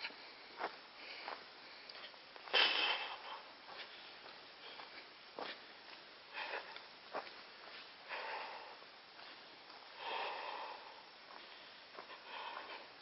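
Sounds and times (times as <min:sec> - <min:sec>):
person breathing hard: 0:00.0 - 0:01.9, 0:02.5 - 0:05.0, 0:06.3 - 0:06.9, 0:07.9 - 0:13.0.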